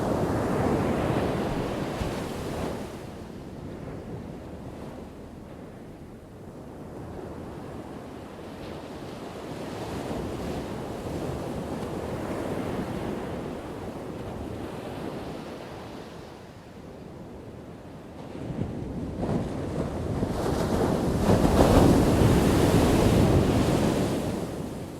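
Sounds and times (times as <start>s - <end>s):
ocean waves crashing: 0.0s - 10.2s.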